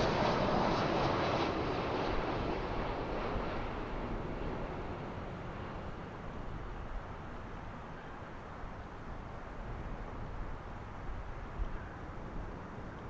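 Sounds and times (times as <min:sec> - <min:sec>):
jet engine roar: 0:00.0 - 0:07.5.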